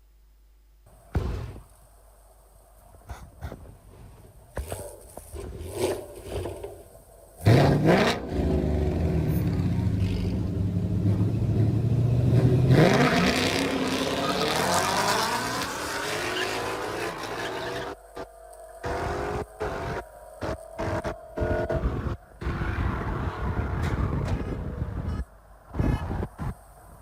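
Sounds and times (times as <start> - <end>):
car engine revving: 7.4 - 22.6.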